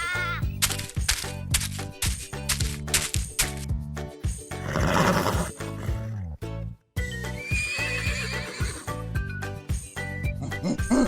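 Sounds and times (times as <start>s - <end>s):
background music with beat: 2.0s - 5.6s, 7.0s - 11.0s.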